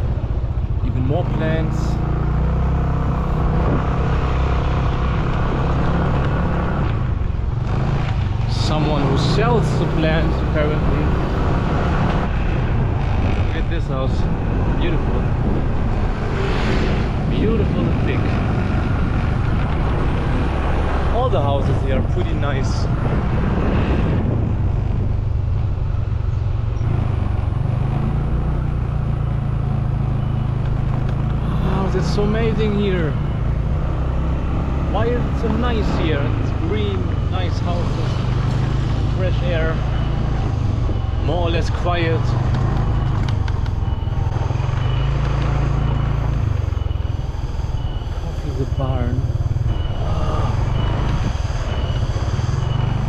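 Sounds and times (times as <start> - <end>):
motorcycle engine running: 0.0 - 53.0
wind and road noise: 0.0 - 53.0.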